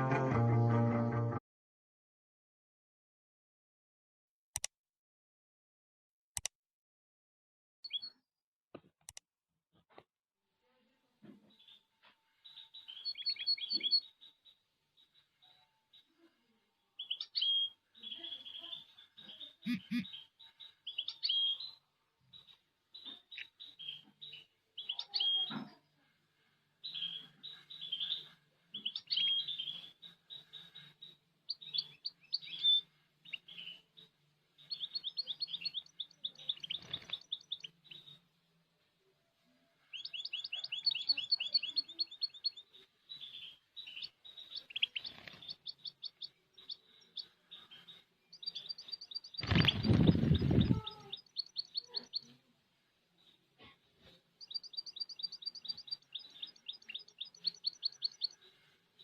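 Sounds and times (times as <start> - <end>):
finch twittering chirps and trills: 34.6 - 38.2, 39.9 - 52.3, 54.4 - 58.4.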